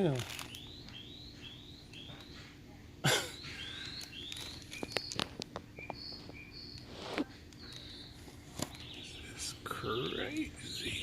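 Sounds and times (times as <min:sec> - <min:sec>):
bird chirping rising notes: 0:03.4 - 0:06.9.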